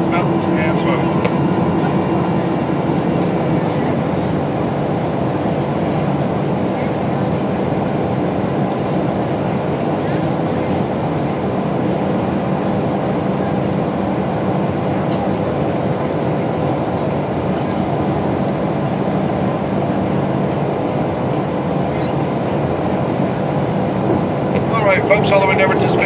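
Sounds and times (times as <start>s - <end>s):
airplane cabin engine hum: 0.0s - 26.0s
faint engine whine: 0.0s - 26.0s.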